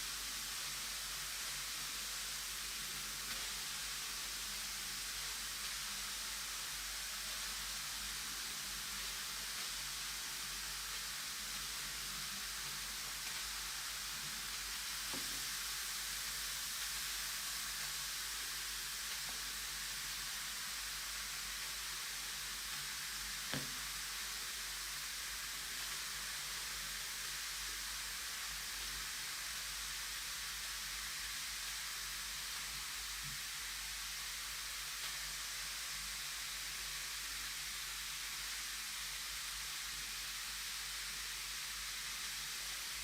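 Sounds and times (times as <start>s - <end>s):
bath bomb fizzing in water: 0.2s - 29.0s
small knock: 23.5s - 23.8s.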